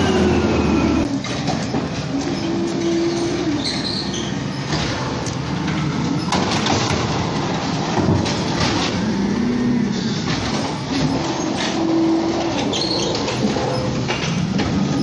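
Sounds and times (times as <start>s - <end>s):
diesel engine running: 0.0s - 1.1s
mechanical clatter: 0.0s - 1.1s
mechanical whine: 0.0s - 1.2s.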